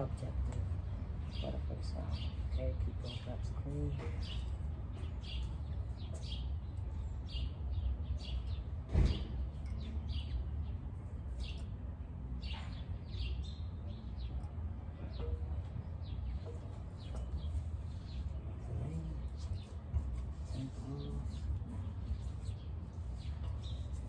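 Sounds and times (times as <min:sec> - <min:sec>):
small birds chirping: 0:00.0 - 0:24.0
thump: 0:08.9 - 0:09.4.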